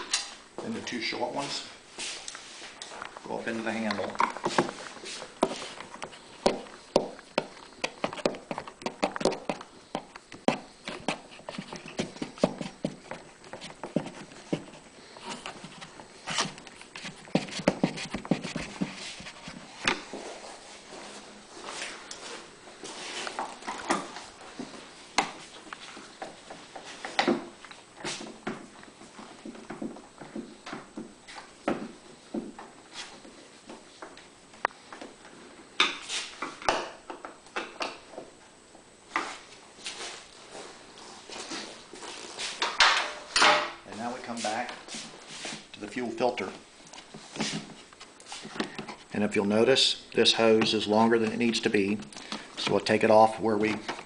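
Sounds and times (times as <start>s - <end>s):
scraping rustles: 10.6s - 27.2s.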